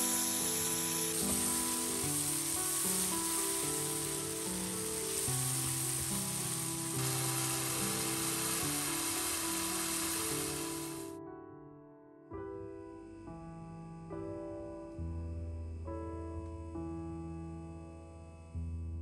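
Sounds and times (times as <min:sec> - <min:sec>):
spice paste sizzling in oil: 0:00.0 - 0:11.1
soft background music: 0:00.0 - 0:11.3.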